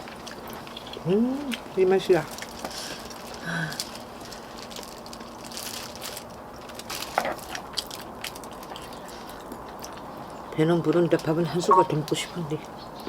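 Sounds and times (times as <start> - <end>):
food chewing and crunching: 0.0 - 12.8.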